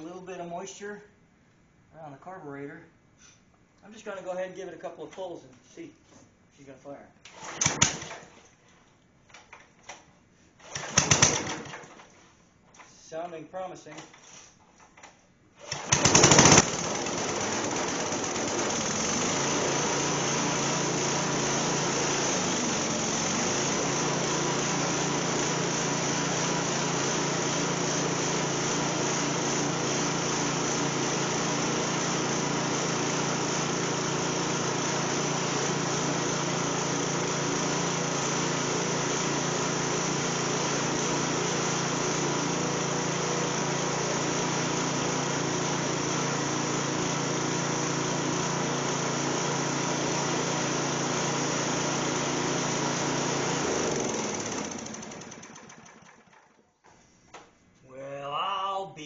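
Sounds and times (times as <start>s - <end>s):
generator engine pull-started: 7.3s - 8.4s, 9.3s - 12.2s, 15.0s - 57.0s.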